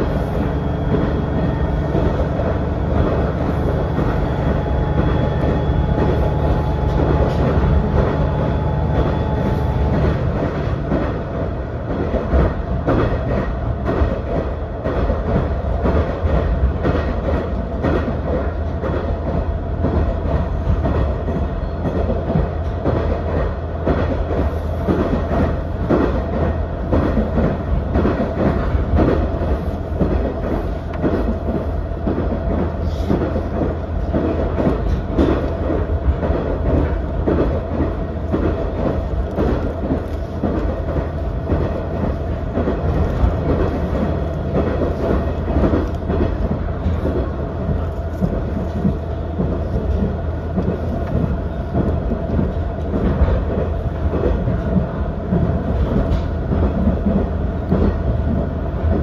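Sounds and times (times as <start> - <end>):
diesel railcar drone: 0.0 - 59.0
wheels clattering on track: 0.0 - 59.0.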